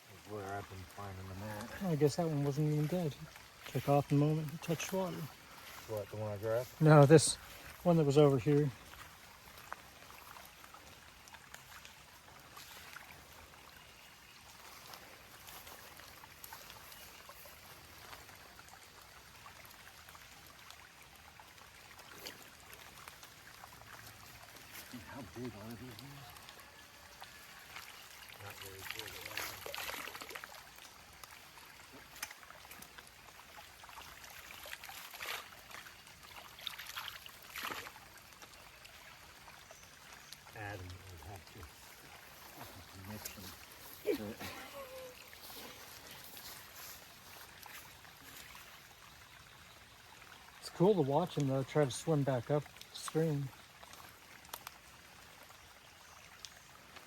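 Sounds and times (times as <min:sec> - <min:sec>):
faint water trickling: 0:00.0 - 0:57.0
small ticks: 0:53.8 - 0:54.9.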